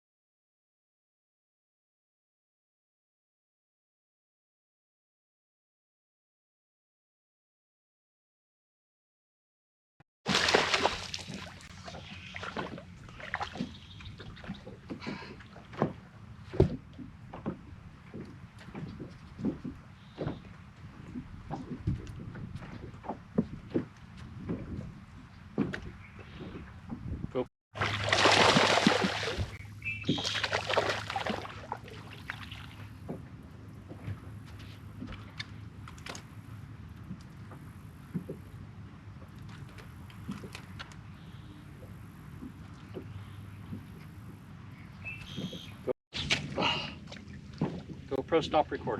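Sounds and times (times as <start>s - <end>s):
water splashing: 10.3s - 23.5s, 27.8s - 36.5s, 45.3s - 48.9s
knocks and clatters on a boat: 11.2s - 27.5s, 28.8s - 41.1s, 41.7s - 44.5s, 45.2s - 48.9s.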